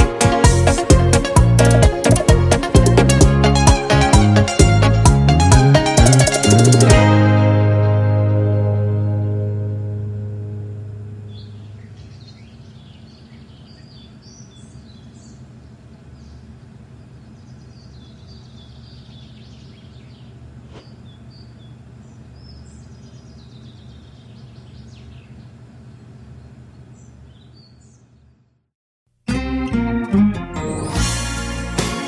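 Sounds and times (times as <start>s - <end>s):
song ending: 0.0s - 11.4s, 29.3s - 32.0s
low steady hum: 4.2s - 28.4s
bird chirps: 11.2s - 28.3s.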